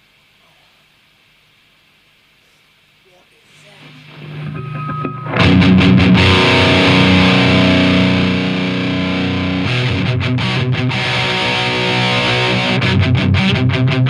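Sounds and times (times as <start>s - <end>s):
distorted electric guitar chords: 3.8s - 14.0s.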